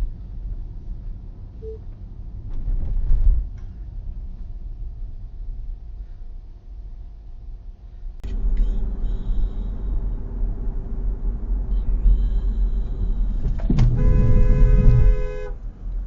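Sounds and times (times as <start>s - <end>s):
vehicle engine and road rumble: 0.0s - 16.0s
loud steady tone: 8.3s - 10.5s, 11.6s - 15.6s.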